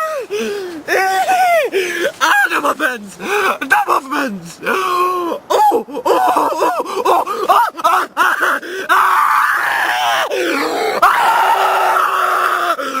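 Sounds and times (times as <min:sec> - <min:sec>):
man yelping: 0:00.8 - 0:11.2
man groaning: 0:00.9 - 0:07.6.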